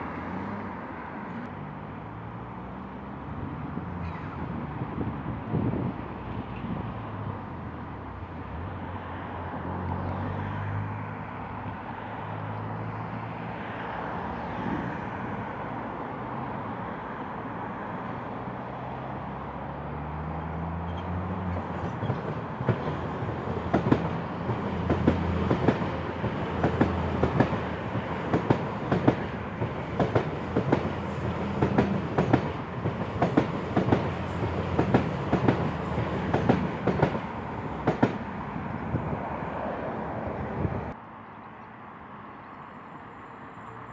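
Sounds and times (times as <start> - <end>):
diesel train engine: 21.5 - 41.0
wheels clacking on rail joints: 21.6 - 38.6.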